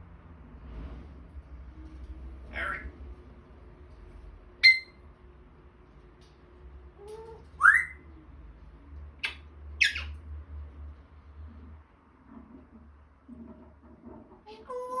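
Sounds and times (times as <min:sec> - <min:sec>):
parrot whistling: 0:04.6 - 0:05.0, 0:07.1 - 0:08.0, 0:09.2 - 0:10.2.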